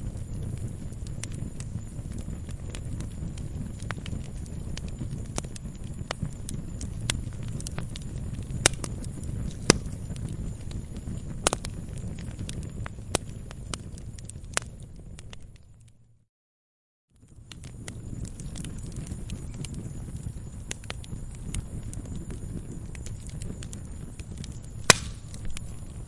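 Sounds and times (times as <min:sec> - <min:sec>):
wood fire crackling and popping: 0:00.0 - 0:16.1, 0:17.2 - 0:26.0
low steady rumble: 0:00.0 - 0:16.2.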